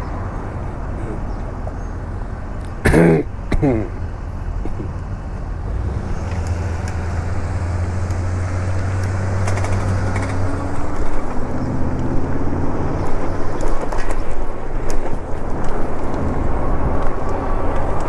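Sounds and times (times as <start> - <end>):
motor vehicle engines humming: 0.0 - 18.0
wind rushing over microphone: 5.5 - 18.0.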